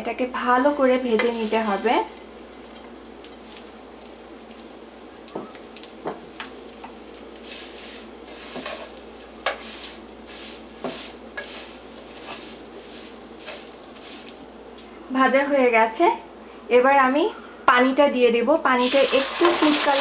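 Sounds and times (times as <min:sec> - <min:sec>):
vermicelli sizzling in ghee: 0:00.1 - 0:14.8, 0:18.7 - 0:20.0
spatula scraping a pot: 0:07.5 - 0:14.4.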